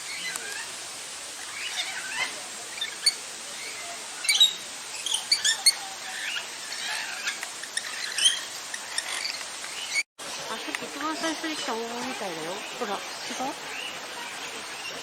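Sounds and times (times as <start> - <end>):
parrots squawking and chattering: 1.4 - 10.0.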